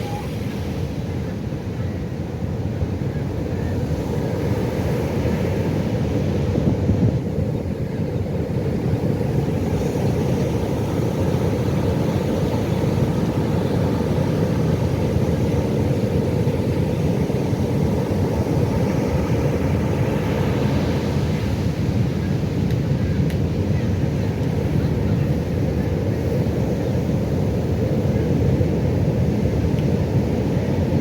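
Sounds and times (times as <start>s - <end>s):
ocean waves breaking: 7.4s - 23.8s.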